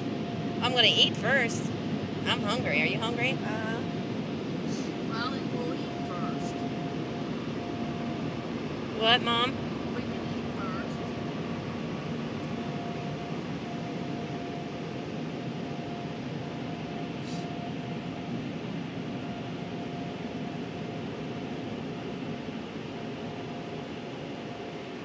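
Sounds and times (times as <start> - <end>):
faint steady hum: 0.0 - 25.0
rush of blowing air: 4.5 - 5.1, 17.2 - 17.6.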